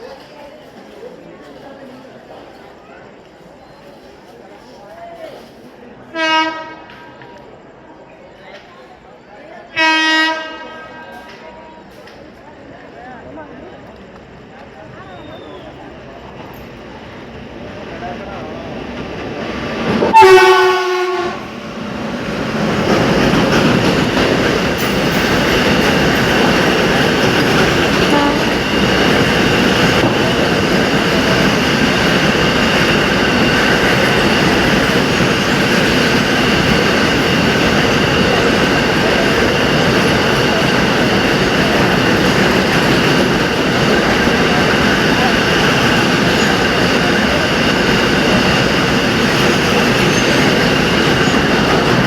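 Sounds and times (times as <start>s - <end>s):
train wheels rumbling on rails: 0.0s - 52.0s
locomotive horn blast: 6.1s - 7.1s, 9.8s - 11.5s, 20.0s - 21.6s, 28.0s - 28.6s.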